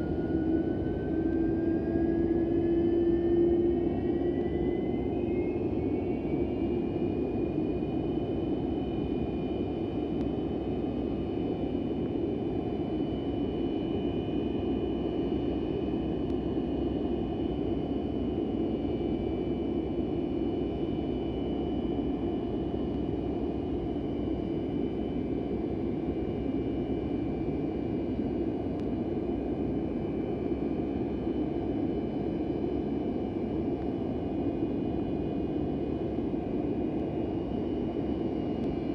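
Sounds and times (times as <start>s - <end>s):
high engine whines: 0.0s - 11.3s
jet engines running: 0.0s - 38.9s.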